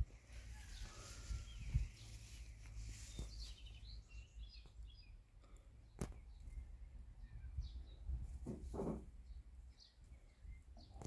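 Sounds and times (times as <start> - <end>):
bird chirps: 0.6 - 8.2.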